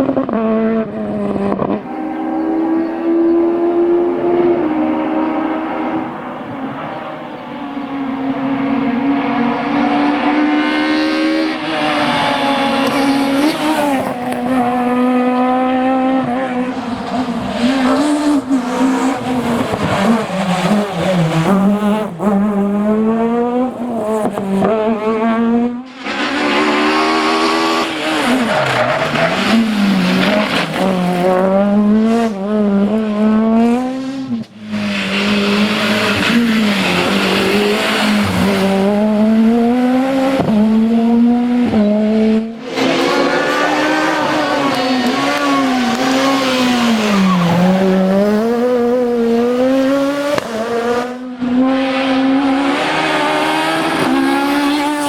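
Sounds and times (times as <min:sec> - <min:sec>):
rally car engine revving: 0:00.0 - 0:55.0
tyre squeal: 0:42.6 - 0:48.1.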